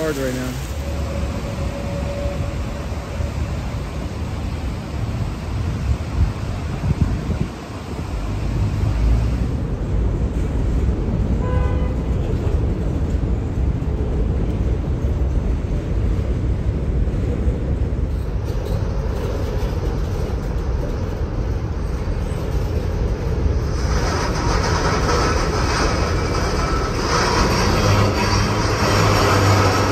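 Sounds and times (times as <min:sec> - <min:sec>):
heavy rain falling: 0:00.0 - 0:01.7, 0:23.5 - 0:29.9
traffic rumble: 0:00.0 - 0:29.9
vehicle horn toot: 0:11.4 - 0:12.1.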